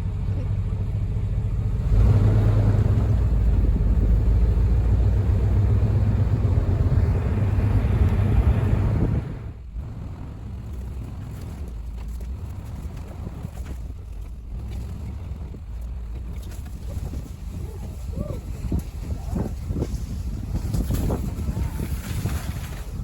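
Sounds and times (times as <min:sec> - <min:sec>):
truck engine and road noise: 0:00.0 - 0:23.0.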